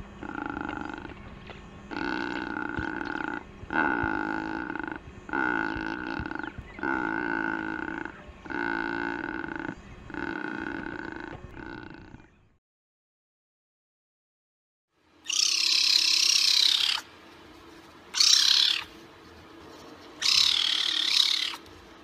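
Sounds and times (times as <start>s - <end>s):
bird drawn-out calls: 0.2s - 1.3s, 1.9s - 12.3s, 15.2s - 17.2s, 18.1s - 22.0s.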